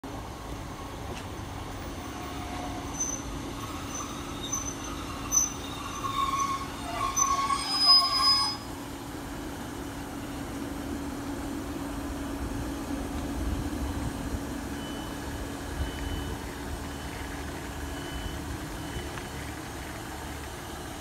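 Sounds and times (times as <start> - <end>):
diesel engine drone: 0.0 - 21.0
wheels and brakes squealing: 1.1 - 9.0.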